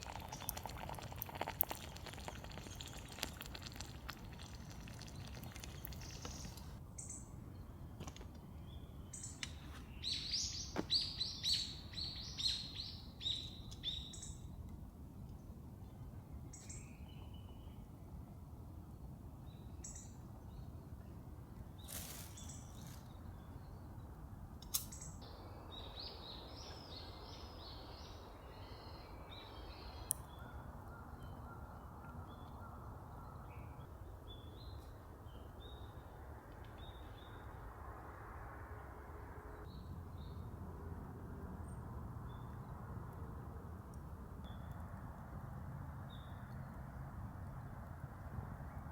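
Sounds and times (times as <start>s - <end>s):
small birds chirping: 0.0s - 14.5s.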